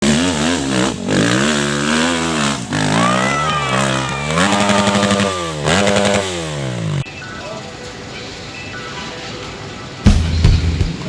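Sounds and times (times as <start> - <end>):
small engines revving hard: 0.0 - 7.1.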